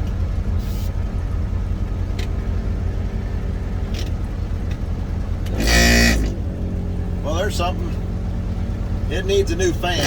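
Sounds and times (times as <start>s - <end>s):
diesel truck engine idling: 0.0s - 10.0s
engine fan tone burst: 5.0s - 6.9s.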